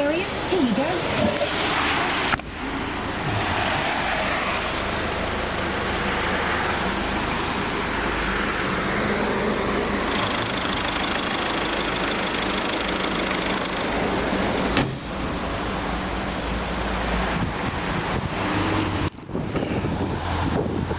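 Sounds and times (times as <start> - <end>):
car engine and road rumble: 0.0 - 20.9.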